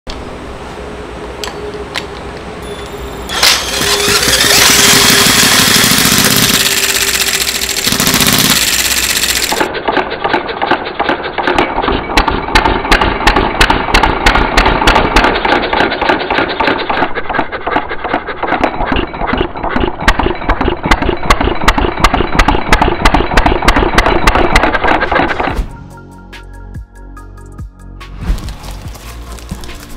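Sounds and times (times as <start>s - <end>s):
loud steady whirring: 0.1s - 25.5s
model engine running: 3.3s - 11.6s.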